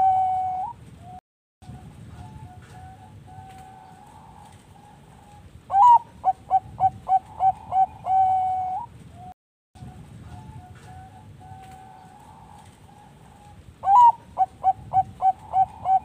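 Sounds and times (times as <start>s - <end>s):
dove cooing: 0.0s - 0.8s, 2.1s - 16.0s.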